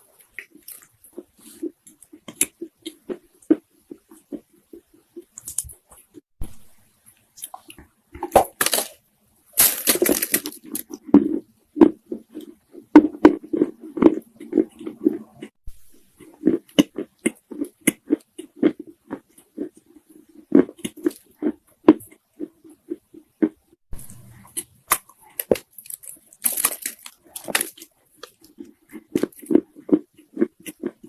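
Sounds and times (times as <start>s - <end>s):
crunchy chewing: 16.2s - 31.0s.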